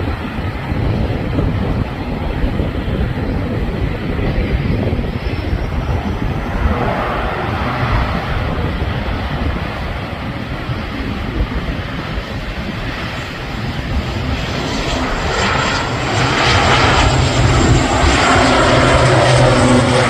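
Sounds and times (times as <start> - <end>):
airliner engines roaring: 0.0 - 20.0.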